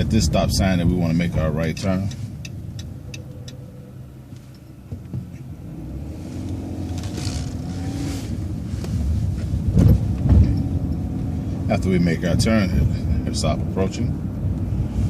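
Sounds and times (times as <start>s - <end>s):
vehicle engine: 0.0s - 15.0s
sharp ticks: 1.6s - 3.6s.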